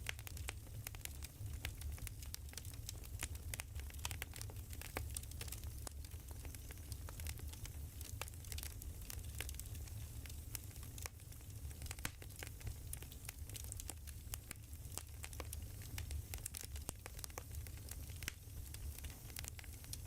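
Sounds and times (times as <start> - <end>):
firewood crackling and popping: 0.0 - 20.0.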